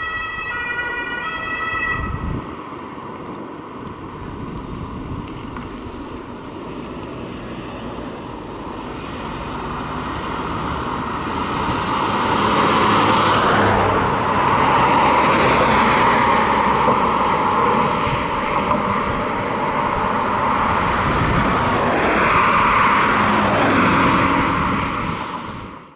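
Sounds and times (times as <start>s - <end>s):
vehicles driving past: 0.0s - 25.9s.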